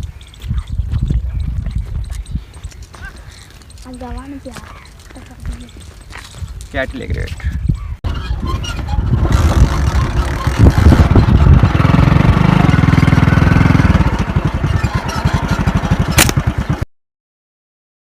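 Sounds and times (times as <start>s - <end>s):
engine running: 8.1s - 16.8s
sharp click: 16.1s - 16.4s.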